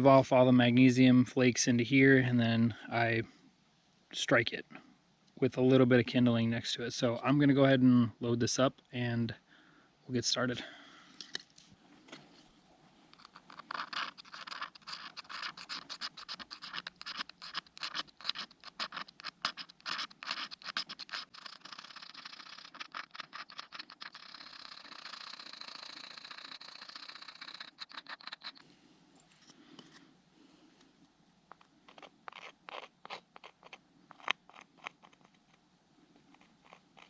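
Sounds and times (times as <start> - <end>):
striker scraping fire-starter block: 13.1 - 25.2, 31.5 - 35.6.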